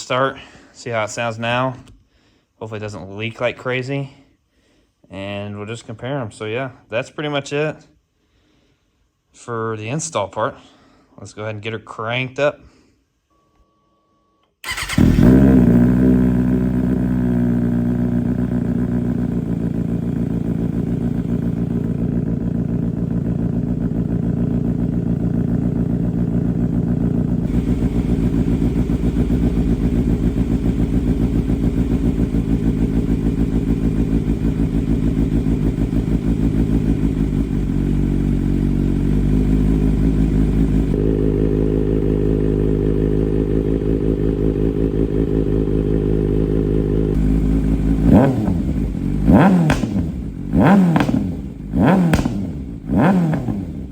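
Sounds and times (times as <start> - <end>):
motorcycle engine starting and idling: 14.6 - 53.9.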